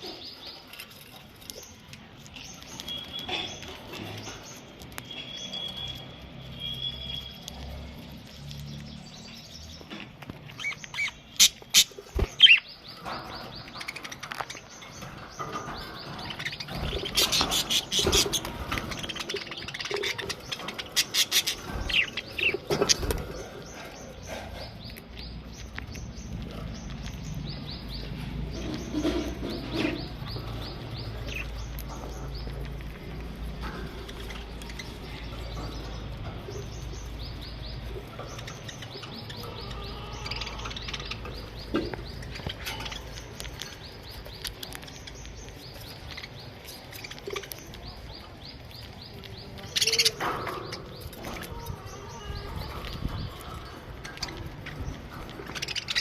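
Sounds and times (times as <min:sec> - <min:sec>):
budgerigars chirping and chattering: 0:00.0 - 0:56.0.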